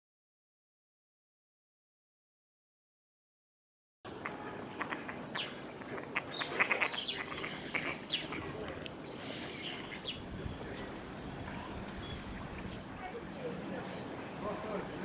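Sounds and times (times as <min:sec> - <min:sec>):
birds chirping: 0:04.1 - 0:15.0.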